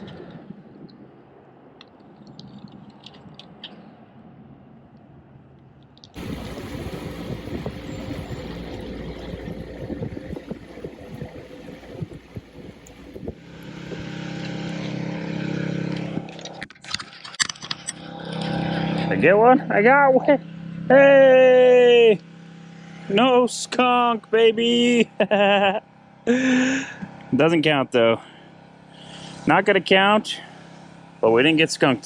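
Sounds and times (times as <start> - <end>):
rushing noise: 6.2 - 14.6
motor hum: 6.2 - 16.6.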